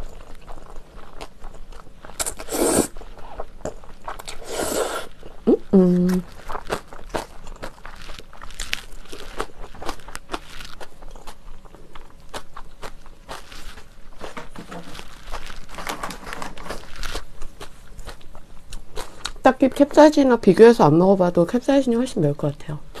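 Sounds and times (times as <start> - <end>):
crunchy chewing: 0.0 - 20.0
wet mouth clicks: 2.2 - 3.0.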